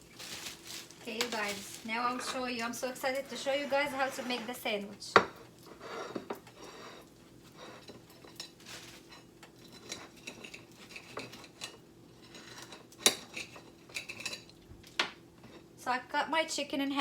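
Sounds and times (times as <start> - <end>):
utensil scraping: 0.0 - 5.0, 5.6 - 11.6
utensils and dishes clinking: 1.1 - 14.6.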